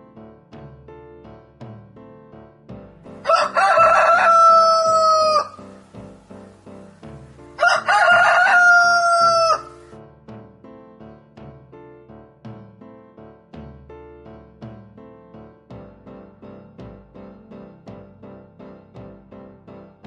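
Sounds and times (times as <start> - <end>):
soft background music: 0.0 - 20.0
rooster crowing: 3.2 - 5.8, 7.6 - 9.9.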